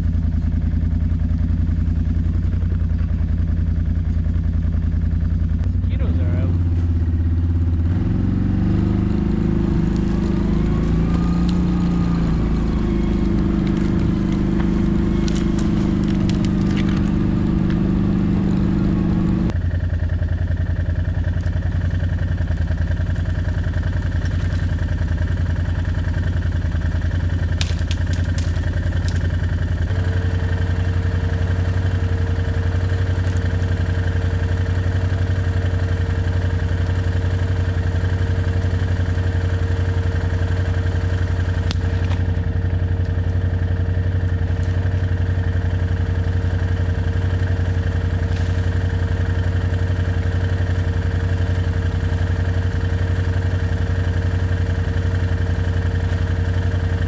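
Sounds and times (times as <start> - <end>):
vehicle engine running: 0.0 - 57.0
steady whine: 5.6 - 19.5.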